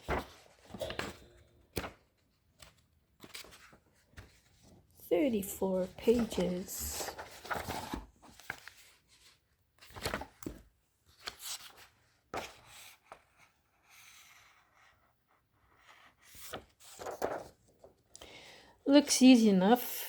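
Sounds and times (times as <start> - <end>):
paper pages turning: 0.0 - 13.5, 15.8 - 18.0.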